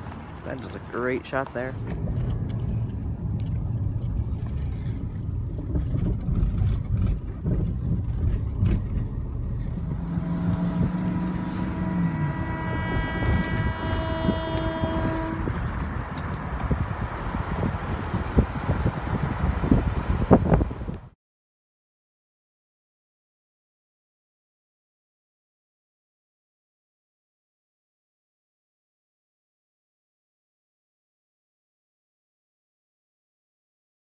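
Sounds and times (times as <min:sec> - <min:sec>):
vehicle engine rumbling: 0:00.0 - 0:21.1
held multi-pitch tone: 0:08.9 - 0:18.1.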